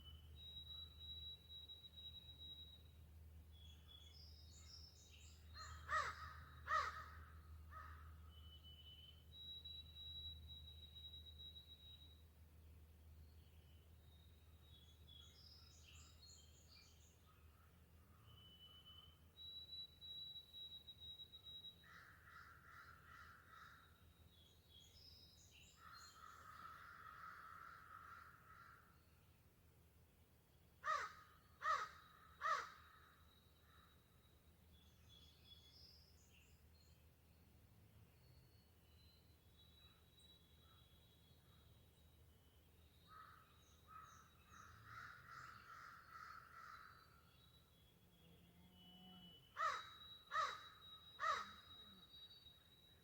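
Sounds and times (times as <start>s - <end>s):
crow cawing: 5.6s - 8.0s, 21.9s - 23.8s, 26.2s - 28.8s, 30.8s - 32.9s, 44.8s - 46.9s, 49.6s - 51.6s
small birds chirping: 38.2s - 53.0s.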